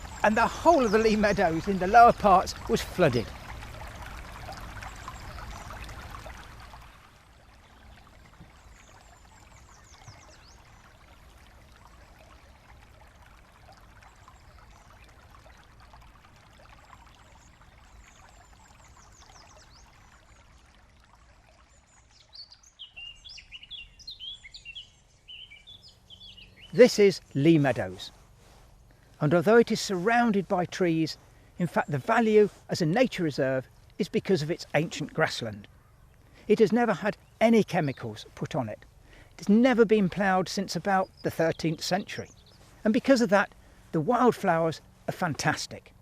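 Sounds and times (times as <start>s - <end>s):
brook water rushing: 0.0s - 46.0s
outdoor hush: 0.0s - 46.0s
songbird singing quick notes: 22.2s - 27.9s.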